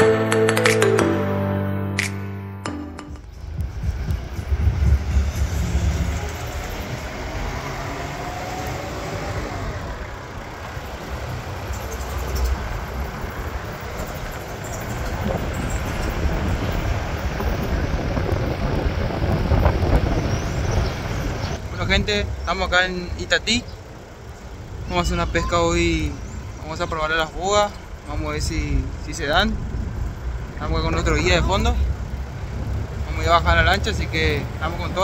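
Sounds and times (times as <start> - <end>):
vehicle engine and road noise: 3.1 - 35.0
wind on microphone: 3.2 - 7.5, 14.9 - 21.6.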